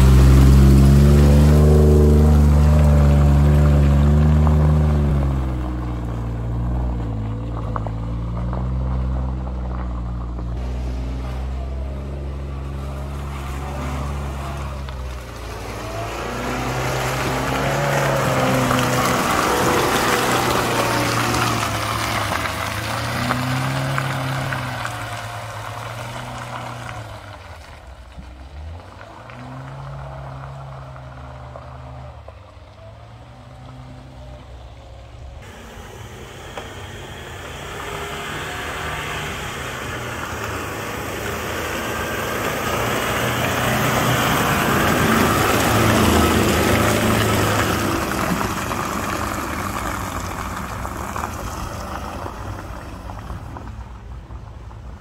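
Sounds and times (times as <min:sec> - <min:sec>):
vehicle engine revving: 0:00.0 - 0:53.7.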